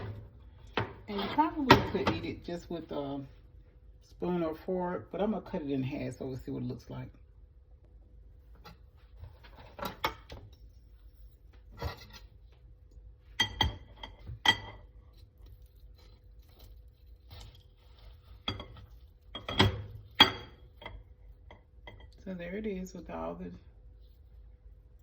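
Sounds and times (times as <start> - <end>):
cutlery clinking against a dish: 13.4 - 14.9.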